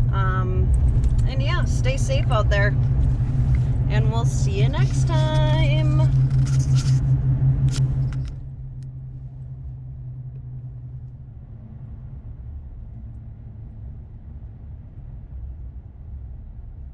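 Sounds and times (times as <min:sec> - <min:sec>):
truck cab rumble: 0:00.0 - 0:13.3.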